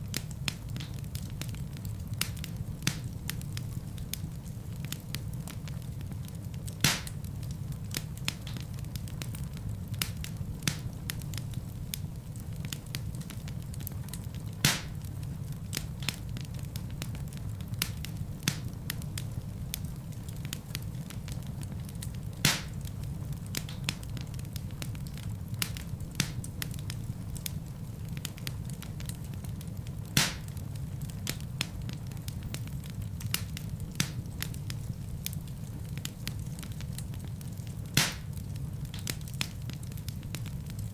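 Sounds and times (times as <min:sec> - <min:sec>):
fire crackling: 0:00.0 - 0:40.9
fire flames rumbling: 0:00.0 - 0:40.9
loud sharp pops: 0:06.8 - 0:07.2, 0:14.6 - 0:15.0, 0:22.4 - 0:22.8, 0:30.2 - 0:30.5, 0:38.0 - 0:38.4.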